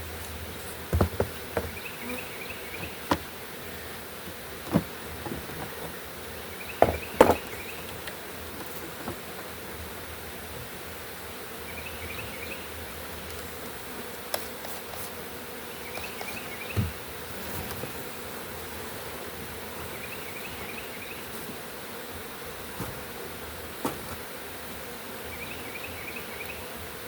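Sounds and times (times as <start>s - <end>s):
bee swarm buzzing: 0.0s - 27.0s
knocks: 6.8s - 7.6s.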